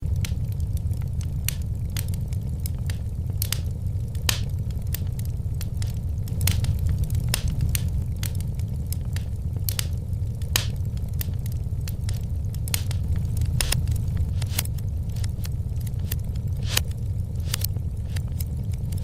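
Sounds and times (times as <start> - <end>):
low rumble: 0.0 - 19.0
wood fire crackling: 0.0 - 19.0.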